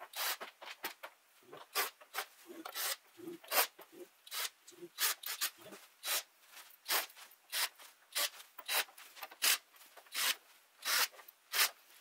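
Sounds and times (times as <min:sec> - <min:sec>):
screwdriver rasping: 0:06.9 - 0:11.8.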